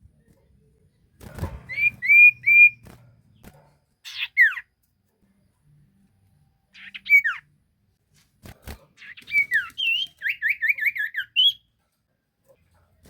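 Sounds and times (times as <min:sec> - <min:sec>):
songbird singing: 0:00.0 - 0:04.7, 0:05.4 - 0:07.6, 0:09.0 - 0:11.7.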